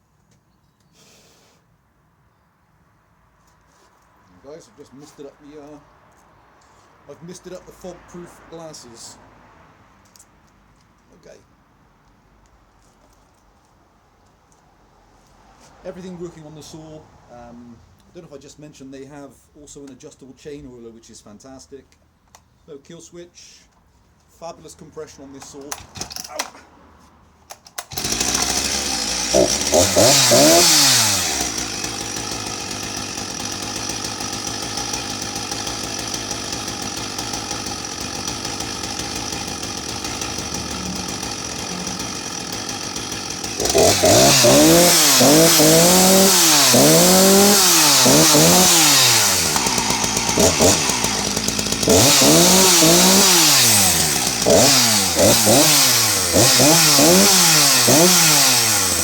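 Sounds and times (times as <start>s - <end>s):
chainsaw idling and revving: 25.7s - 26.5s, 27.8s - 59.0s.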